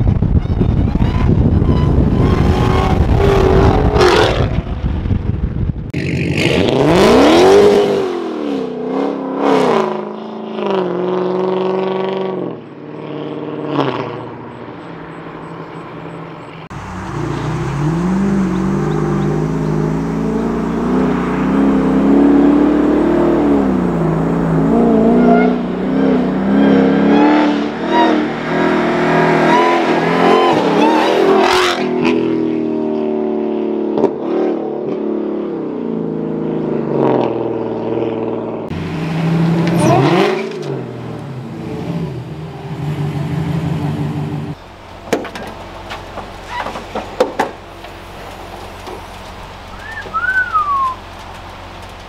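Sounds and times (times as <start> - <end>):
car engine revving hard: 6.0 - 14.3, 16.7 - 32.4, 36.9 - 44.6.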